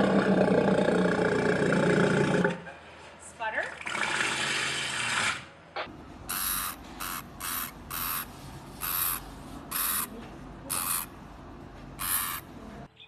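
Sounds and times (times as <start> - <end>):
animal hissing: 6.3 - 10.1, 10.7 - 11.1, 12.0 - 12.4.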